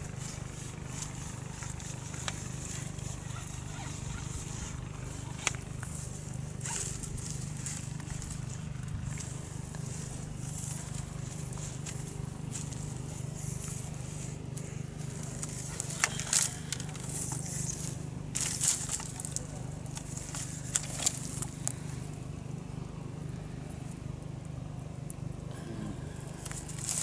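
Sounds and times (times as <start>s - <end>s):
crackling rustles: 0.0s - 25.5s, 26.1s - 27.0s
water pumps droning: 0.0s - 27.0s.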